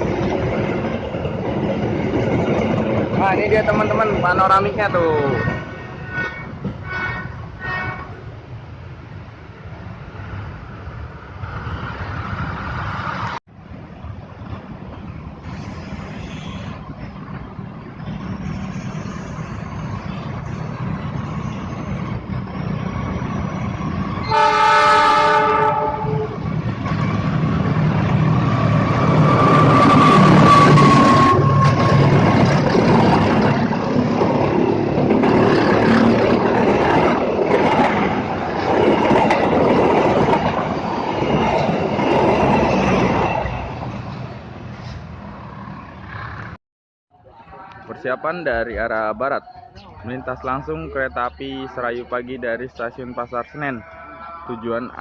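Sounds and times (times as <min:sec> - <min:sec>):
train rumble and wheel clatter: 0:00.0 - 0:46.6
train horn: 0:05.4 - 0:08.2, 0:24.2 - 0:26.4.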